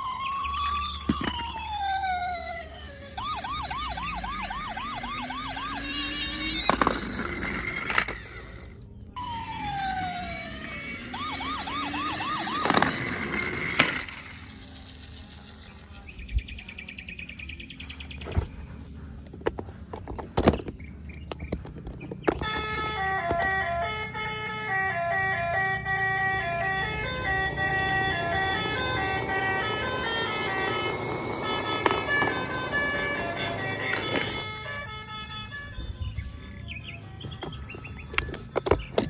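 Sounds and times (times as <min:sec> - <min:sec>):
beeping electronic tune: 0:00.0 - 0:07.8, 0:09.2 - 0:14.6, 0:22.4 - 0:36.8
falling electronic tone: 0:00.0 - 0:15.9, 0:22.4 - 0:35.7
toy siren warbling: 0:00.0 - 0:16.1, 0:22.3 - 0:36.6.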